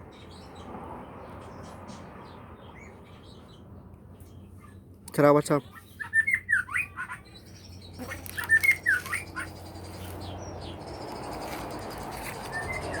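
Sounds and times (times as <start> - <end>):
bird singing whistled notes: 5.6 - 13.0.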